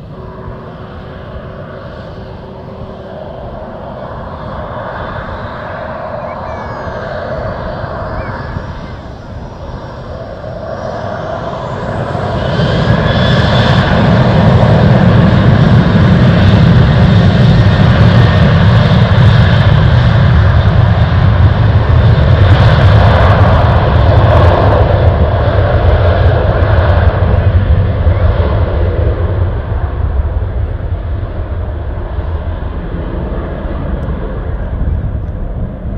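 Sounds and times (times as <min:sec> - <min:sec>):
aircraft engine with high whine: 0:00.0 - 0:35.9.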